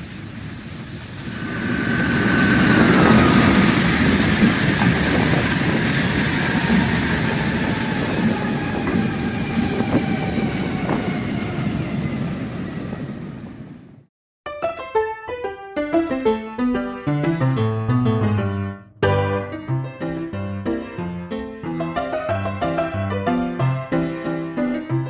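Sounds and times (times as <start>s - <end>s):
wheels clicking over rail joints: 0.0s - 11.2s
train rumbling past: 0.0s - 14.1s.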